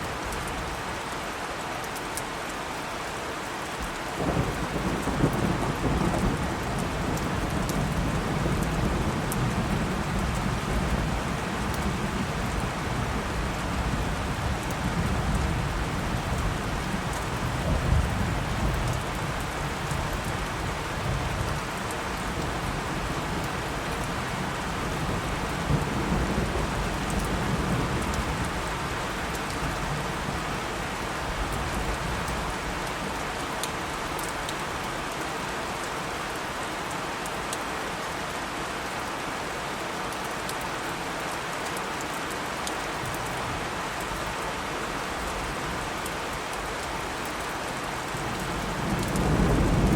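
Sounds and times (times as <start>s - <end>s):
steady rain falling: 0.0s - 49.9s
low thunder rumbling: 48.2s - 49.9s.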